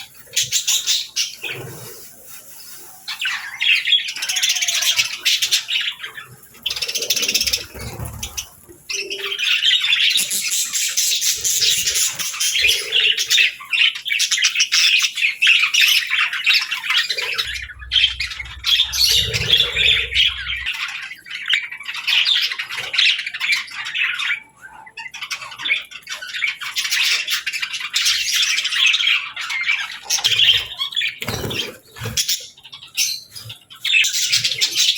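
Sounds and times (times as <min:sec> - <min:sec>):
parrots chattering and squawking: 0:00.0 - 0:34.9
low rumble: 0:17.5 - 0:20.7.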